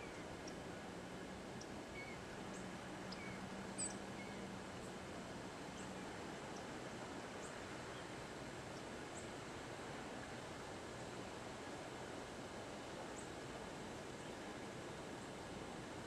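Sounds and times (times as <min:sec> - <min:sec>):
steady outdoor hiss: 0:00.0 - 0:16.0
faint bird chirps: 0:01.6 - 0:04.5.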